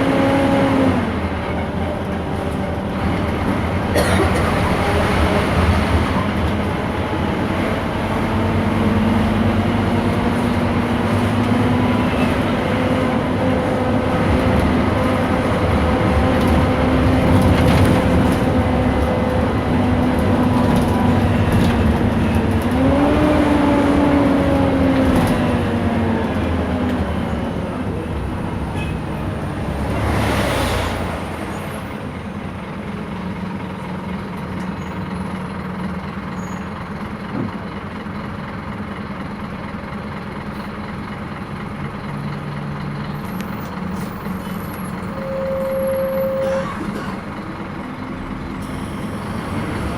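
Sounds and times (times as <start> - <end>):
bus engine and transmission whine: 0.0 - 49.9.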